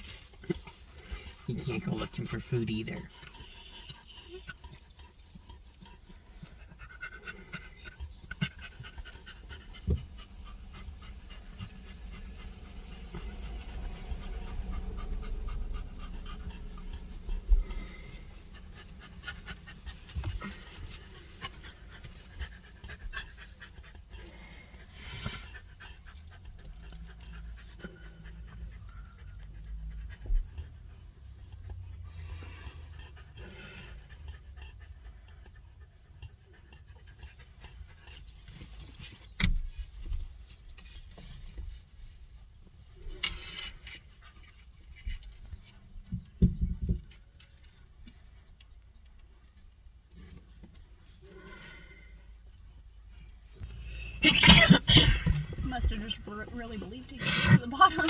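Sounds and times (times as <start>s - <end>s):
dog panting: 0.0s - 43.2s
low steady rumble: 0.0s - 58.0s.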